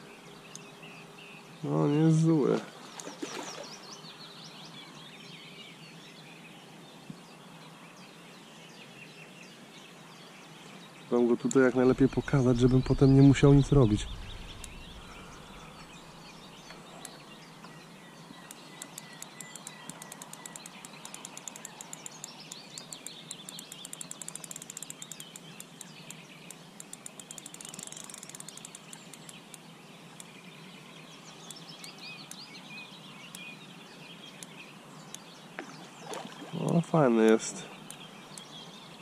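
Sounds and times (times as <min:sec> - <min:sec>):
birds singing: 0:00.0 - 0:39.0
rapid sharp ticking: 0:18.5 - 0:26.2, 0:26.8 - 0:29.6.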